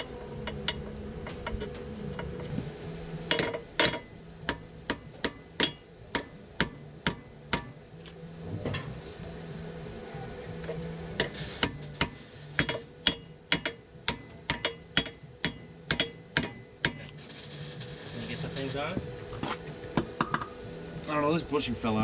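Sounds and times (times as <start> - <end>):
hammer striking metal: 3.3 - 7.8, 11.2 - 17.6.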